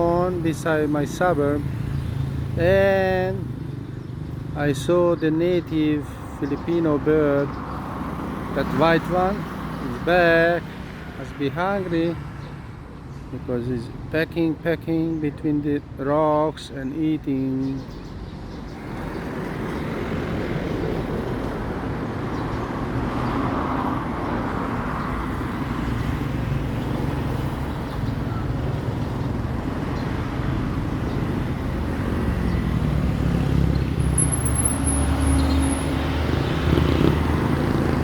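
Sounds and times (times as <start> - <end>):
vehicle engines running: 18.6 - 38.0.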